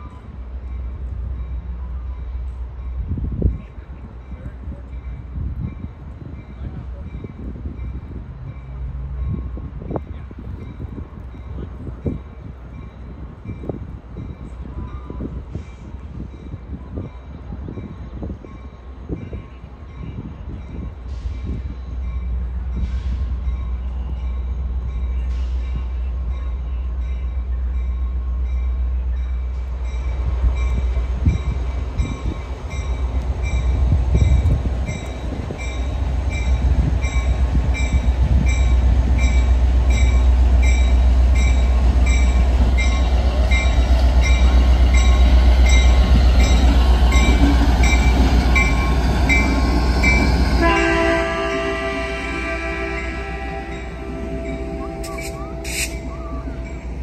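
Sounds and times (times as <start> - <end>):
diesel locomotives rumbling: 0.0 - 57.0
locomotive bell ringing: 23.4 - 57.0
multi-note train horn: 48.7 - 57.0.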